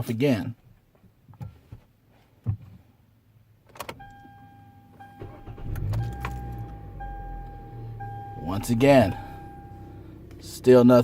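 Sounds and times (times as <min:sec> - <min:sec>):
car engine cranking and idling: 0:03.7 - 0:11.0
electronic dashboard chime: 0:04.0 - 0:10.7.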